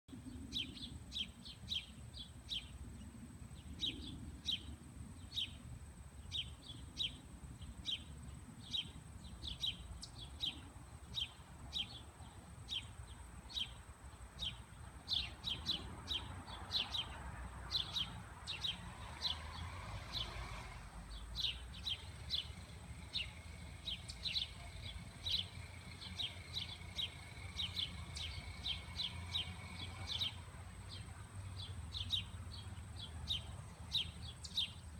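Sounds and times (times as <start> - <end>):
bird chirping: 0.1 - 34.9.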